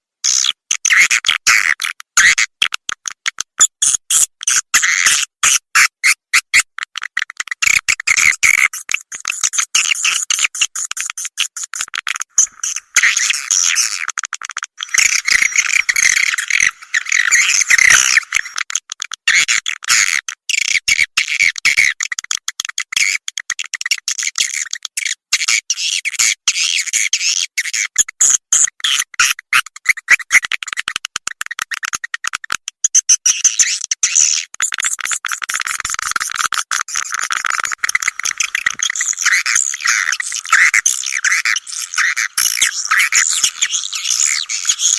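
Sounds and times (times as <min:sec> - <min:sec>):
swiftlets twittering: 0:14.8 - 0:18.5.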